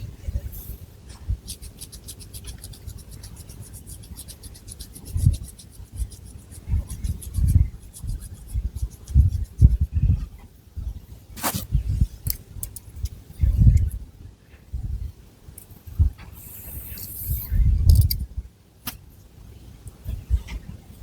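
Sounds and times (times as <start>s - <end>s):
fingernails scratching hair: 1.4s - 9.9s.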